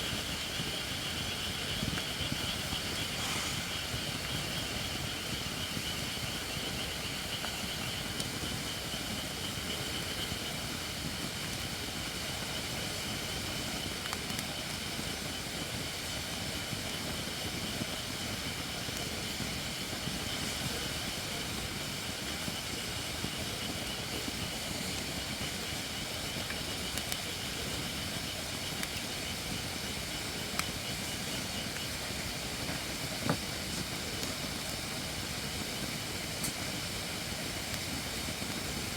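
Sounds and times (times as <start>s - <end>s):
campfire crackles: 0.0s - 38.9s
hiss of steaming logs: 0.0s - 38.9s
fire popping: 0.1s - 10.5s, 11.5s - 38.9s.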